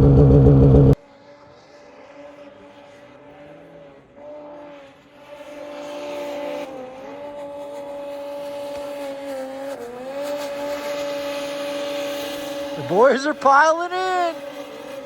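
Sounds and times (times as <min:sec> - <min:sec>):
snowmobile engine running: 0:00.0 - 0:01.0, 0:05.2 - 0:15.0.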